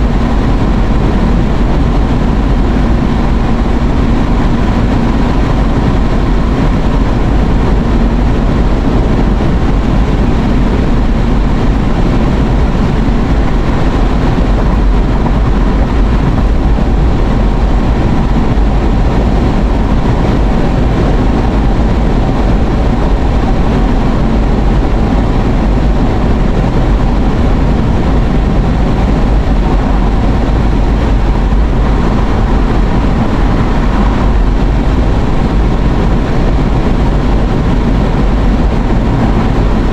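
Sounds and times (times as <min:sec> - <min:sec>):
car cabin road noise: 0:00.0 - 0:39.9.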